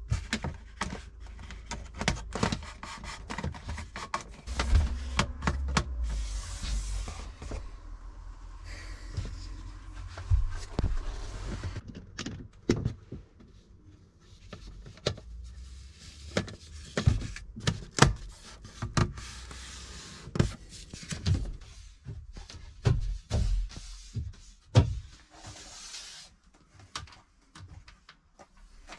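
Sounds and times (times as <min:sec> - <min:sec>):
knocks and thuds of building work: 0:04.4 - 0:06.2
low rumble: 0:04.5 - 0:11.8.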